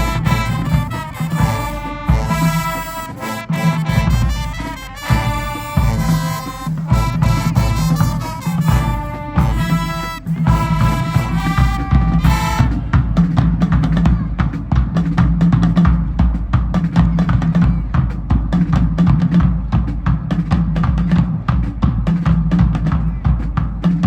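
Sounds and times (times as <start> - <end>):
brass chord: 0.0 - 13.4
snare and bass drum beat: 0.0 - 24.0.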